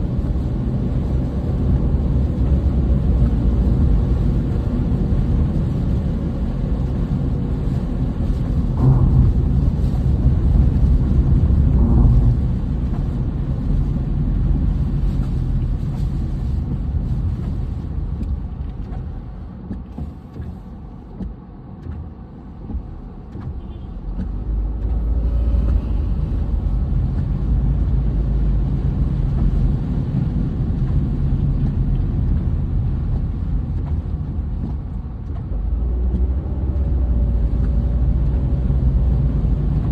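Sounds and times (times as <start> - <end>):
steady low rumble: 0.0 - 39.9.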